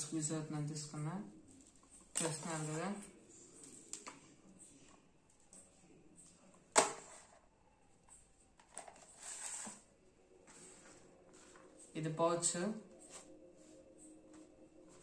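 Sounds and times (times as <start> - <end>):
gadgets being handled: 1.5 - 11.9.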